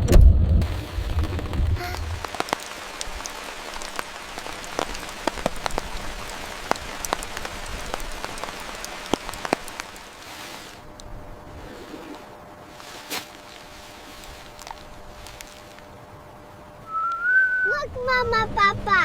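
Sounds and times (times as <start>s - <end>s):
low rumble: 0.0s - 2.3s
rain drops on hard surface: 0.0s - 16.4s.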